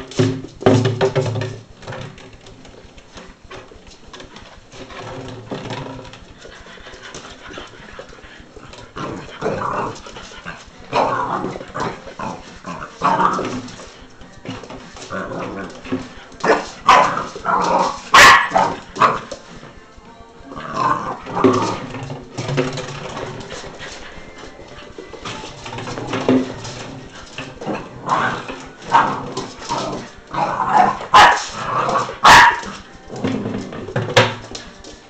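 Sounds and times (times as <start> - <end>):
puppy barking: 16.5 - 17.3, 18.0 - 19.2, 30.7 - 31.5, 32.2 - 32.8.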